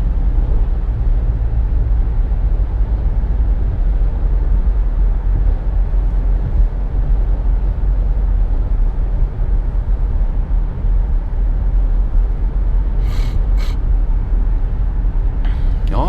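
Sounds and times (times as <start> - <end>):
road and engine rumble in car: 0.0 - 16.0
brief hissing noises: 13.0 - 13.8.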